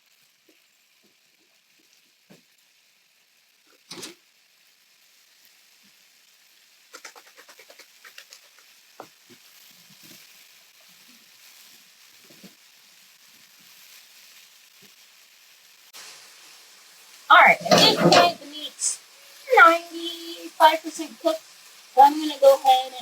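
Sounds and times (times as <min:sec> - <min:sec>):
meat sizzling in a skillet: 0:00.0 - 0:23.0
utensil tapping and scraping pan: 0:17.5 - 0:18.5.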